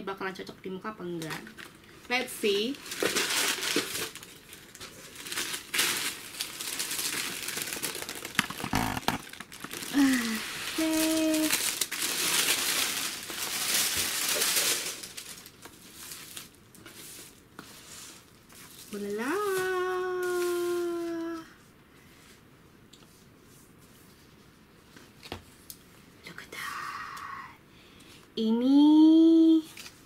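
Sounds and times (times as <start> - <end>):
packaging crinkling and rustling: 1.2 - 17.5, 18.1 - 21.2.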